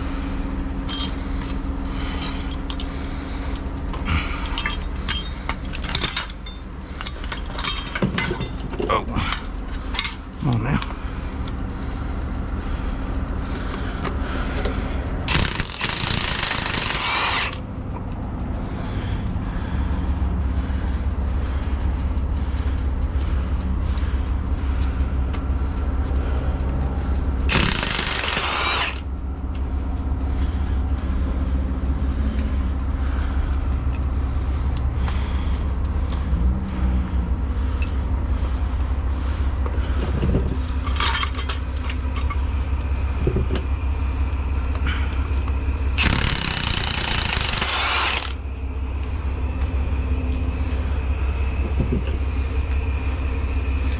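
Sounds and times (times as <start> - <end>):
truck engine idling: 0.0 - 53.9
impact wrench bursts: 15.2 - 17.6, 27.5 - 29.1, 45.9 - 48.4.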